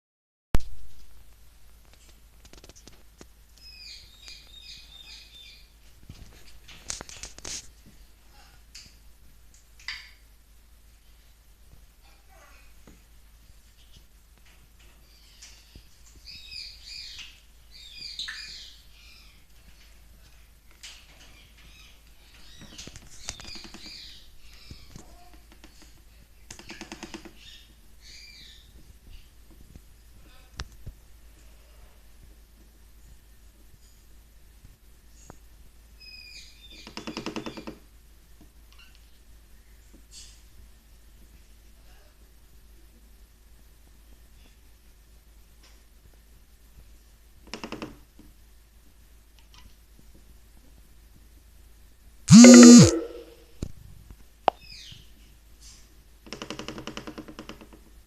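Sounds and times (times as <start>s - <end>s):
parrot chirping: 52.3s - 53.4s.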